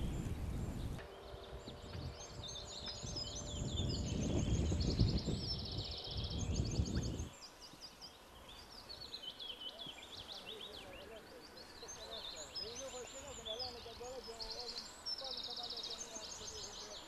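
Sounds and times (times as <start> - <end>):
low rumble: 0.0 - 7.3
small birds chirping and trilling: 0.0 - 17.0.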